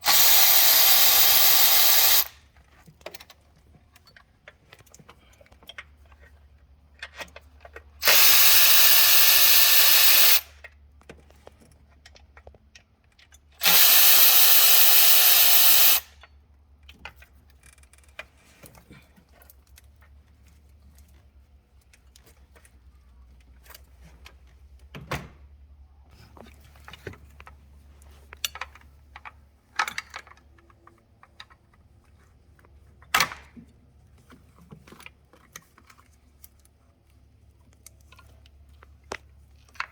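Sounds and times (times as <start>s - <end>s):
cordless drill running: 0.0s - 2.4s, 8.0s - 10.5s, 13.6s - 16.1s
tools and parts clicking: 0.1s - 18.8s, 28.3s - 31.8s.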